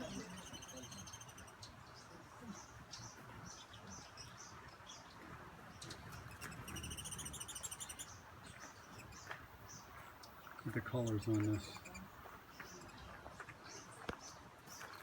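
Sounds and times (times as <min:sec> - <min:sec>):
hummingbirds chipping: 0:00.0 - 0:05.0, 0:05.7 - 0:15.0.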